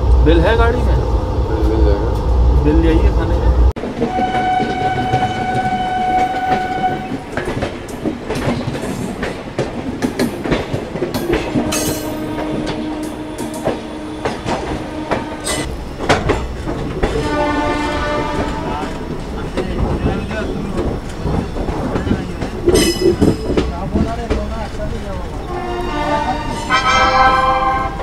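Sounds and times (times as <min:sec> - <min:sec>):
train horn: 0:04.0 - 0:07.2, 0:11.3 - 0:15.7, 0:17.0 - 0:18.9, 0:25.5 - 0:28.0
low steady horn-like tone: 0:04.1 - 0:07.2, 0:11.5 - 0:15.7, 0:25.5 - 0:28.0
wheels clattering over rail joints: 0:04.8 - 0:25.5.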